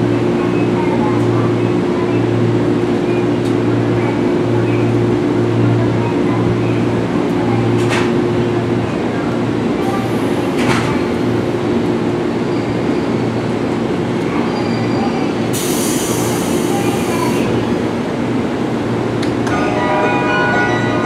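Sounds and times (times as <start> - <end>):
train doors closing clack: 7.7 - 8.2, 10.1 - 11.2.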